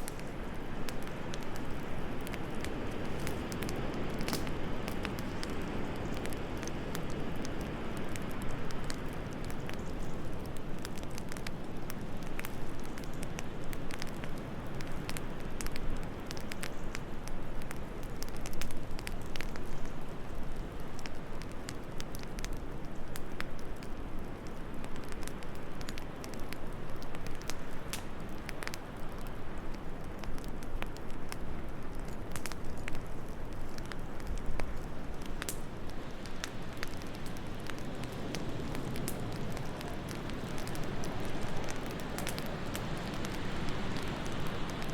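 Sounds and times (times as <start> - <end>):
soft wind: 0.0 - 44.9
wood fire crackling and popping: 0.0 - 44.9.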